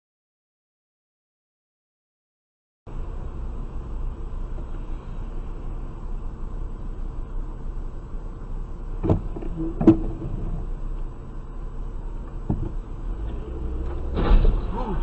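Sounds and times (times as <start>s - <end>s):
car engine rumbling: 2.9s - 15.0s.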